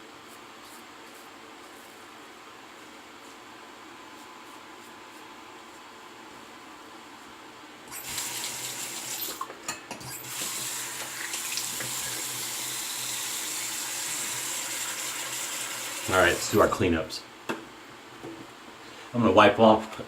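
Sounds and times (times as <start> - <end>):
tap water running into sink: 10.1 - 16.5.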